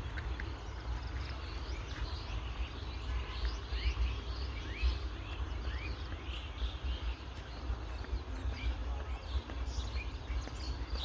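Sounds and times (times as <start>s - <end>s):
small birds chirping: 0.0s - 11.0s
steady low rumble: 0.0s - 11.0s.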